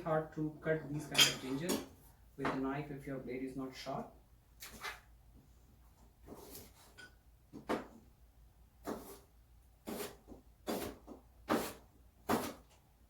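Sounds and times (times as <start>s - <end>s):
knife slicing ginger root: 8.8s - 12.6s.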